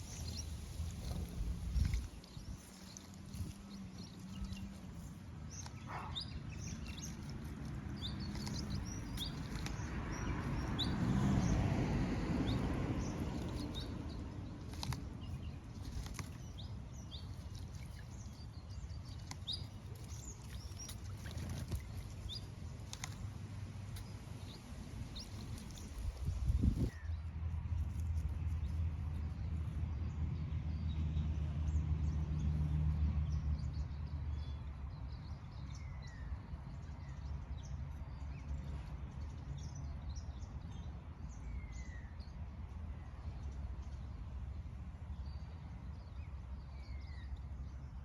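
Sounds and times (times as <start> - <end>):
birds chirping: 0.0 - 27.1.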